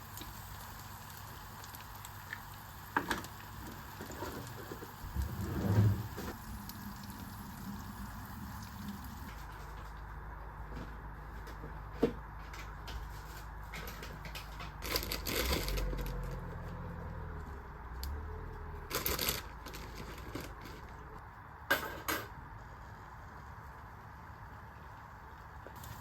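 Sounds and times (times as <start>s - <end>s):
steady low hum: 4.8s - 21.7s.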